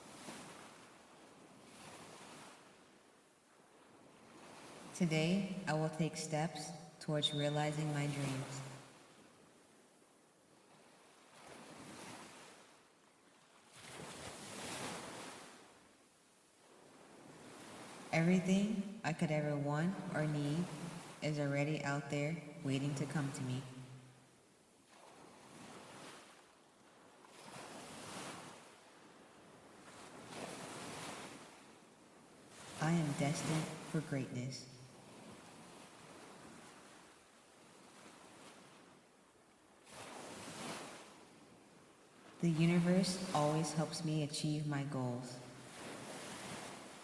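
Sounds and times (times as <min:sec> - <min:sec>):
ocean waves washing in: 0:13.6 - 0:15.9, 0:16.5 - 0:24.2, 0:24.8 - 0:39.0, 0:42.2 - 0:47.0.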